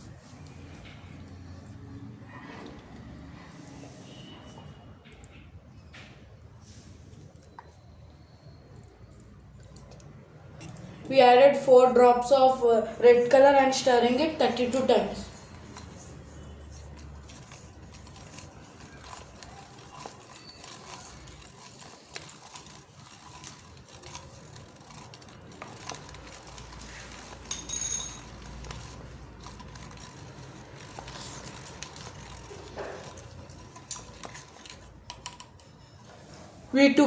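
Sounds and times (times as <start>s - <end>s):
spoon and containers clicking: 13.2s - 35.8s.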